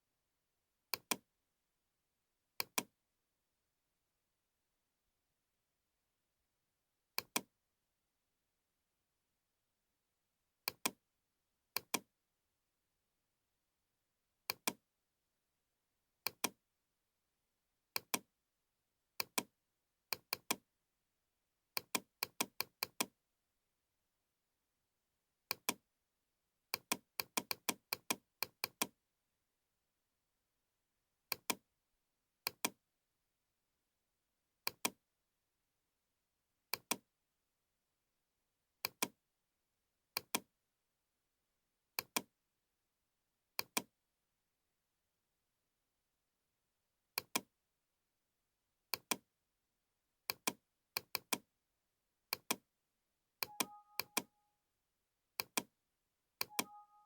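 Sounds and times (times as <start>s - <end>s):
computer mouse clicking: 2.6s - 2.9s, 18.0s - 18.2s, 32.5s - 32.8s, 42.0s - 42.3s, 47.2s - 47.5s, 52.3s - 52.6s, 53.4s - 54.3s, 55.4s - 55.7s.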